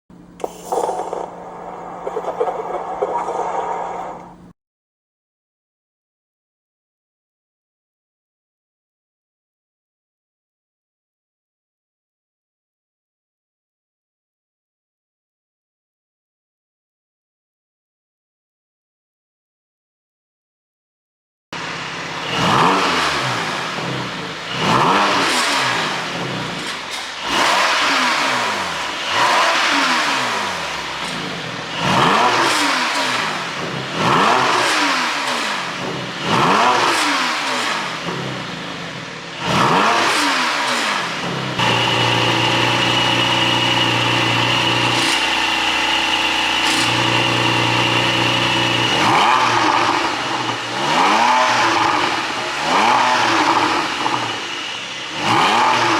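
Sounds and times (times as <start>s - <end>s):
engine revving: 21.6s - 55.9s.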